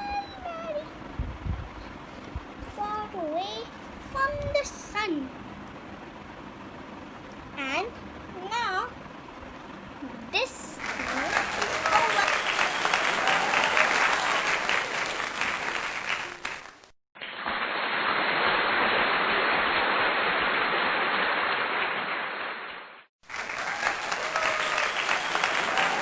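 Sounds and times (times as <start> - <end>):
crowd applause: 10.8 - 16.9, 17.5 - 22.4, 23.2 - 26.0.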